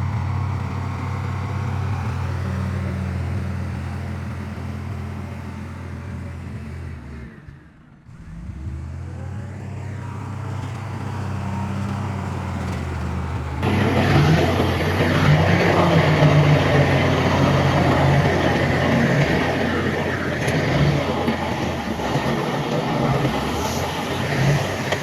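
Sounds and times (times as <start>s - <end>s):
diesel machinery engine hum: 0.0s - 25.0s
harsh mechanical noise: 8.1s - 25.0s.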